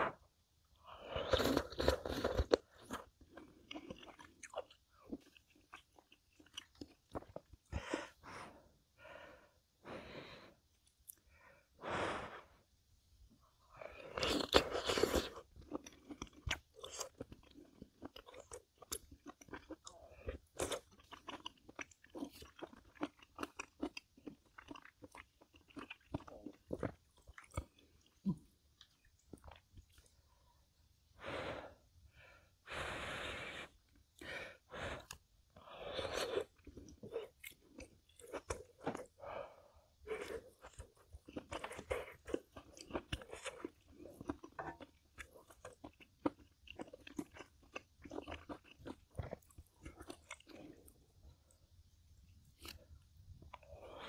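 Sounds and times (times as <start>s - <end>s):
wet chewing and crunching: 1.2s - 8.2s, 13.8s - 30.2s, 35.8s - 39.3s, 40.0s - 51.6s.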